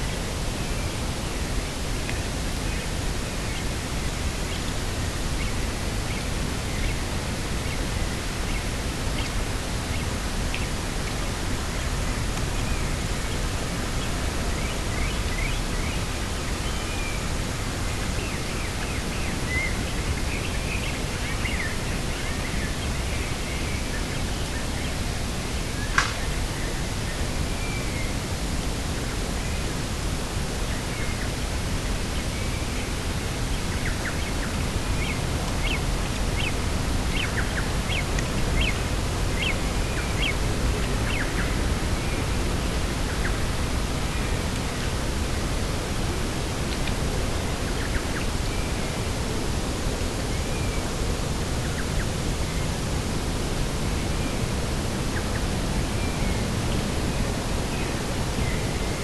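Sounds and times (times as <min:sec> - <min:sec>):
small birds chirping faintly: 0:00.0 - 0:59.0
wind rush with deep rumble: 0:00.0 - 0:59.0
sharp click: 0:25.9 - 0:26.2.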